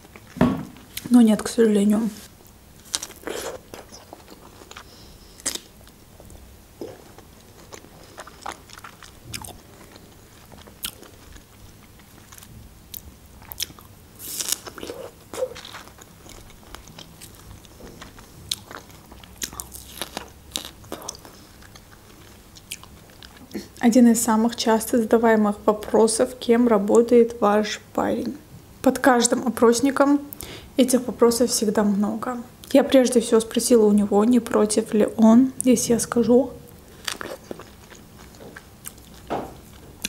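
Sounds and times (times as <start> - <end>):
chewing strawberries: 2.8 - 23.8, 36.7 - 39.9.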